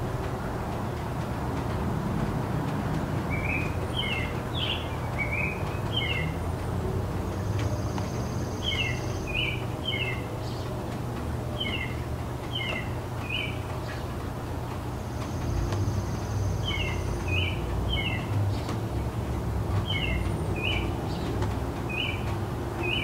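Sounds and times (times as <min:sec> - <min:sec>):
distant city traffic rumble: 0:00.0 - 0:23.0
small bird chirping: 0:07.5 - 0:10.6, 0:15.2 - 0:18.8.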